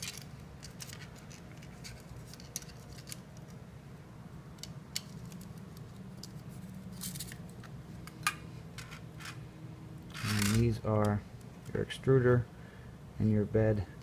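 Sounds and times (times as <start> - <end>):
wires clicking and rustling: 0.0 - 3.6, 4.5 - 9.4, 10.0 - 11.8
low steady hum: 0.0 - 14.0.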